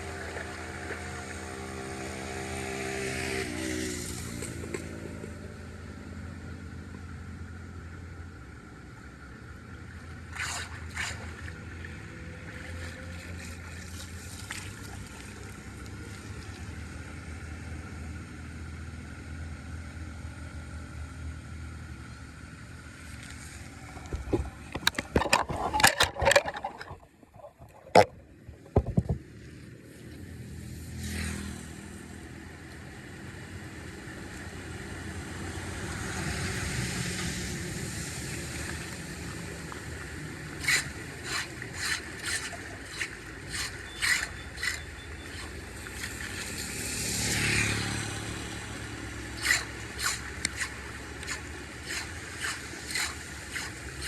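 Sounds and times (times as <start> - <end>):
water rushing: 10.2 - 16.6, 23.7 - 29.0, 36.0 - 54.0
hand tools knocking and scraping: 24.0 - 29.2, 40.6 - 46.1, 49.4 - 54.0.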